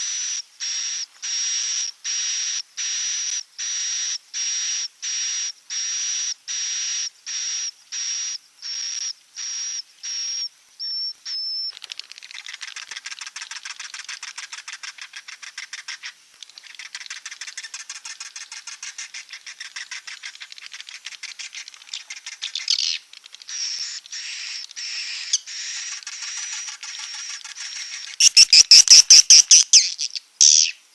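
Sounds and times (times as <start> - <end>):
high bird chirps: 10.8 - 30.9
rapid twittering chatter: 11.7 - 30.9.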